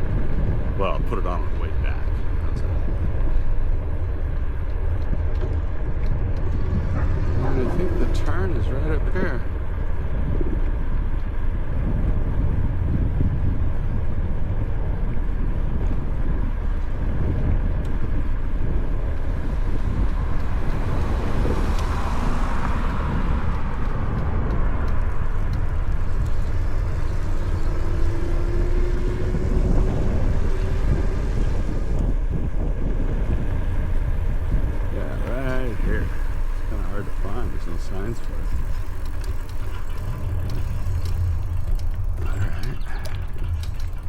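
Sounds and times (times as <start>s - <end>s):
wind rumble: 0.0s - 44.0s
tyre noise: 14.4s - 44.0s.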